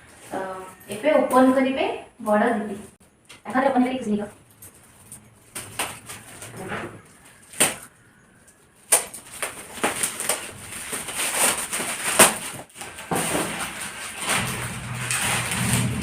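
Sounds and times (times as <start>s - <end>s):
wrapping paper crackling and tearing: 8.5s - 16.0s.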